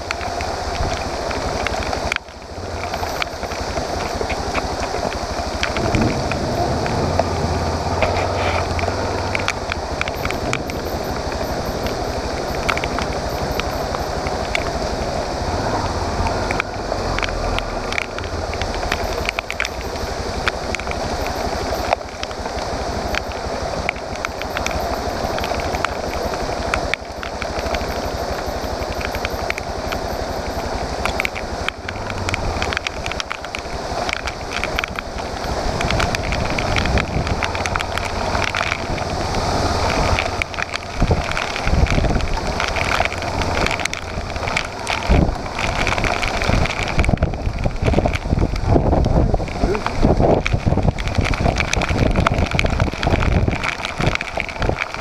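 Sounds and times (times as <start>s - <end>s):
motorcycle engine running: 0.0s - 55.0s
ticks and crackles: 0.0s - 55.0s
wind rush on microphone: 0.0s - 55.0s.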